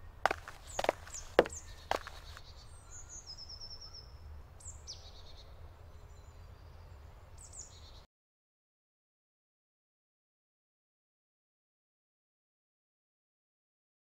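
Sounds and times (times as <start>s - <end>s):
woodland birds calling: 0.0s - 5.4s
sharp knocks: 0.3s - 2.2s.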